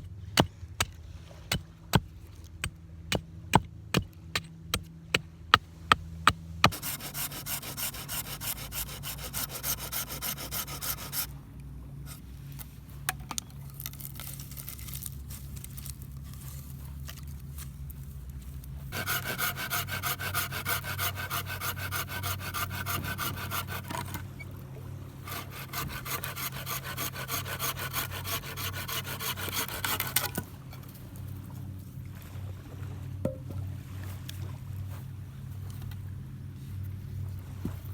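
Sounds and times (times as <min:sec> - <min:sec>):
hand saw cutting wood: 0:06.6 - 0:11.4, 0:18.9 - 0:24.5, 0:25.2 - 0:30.9.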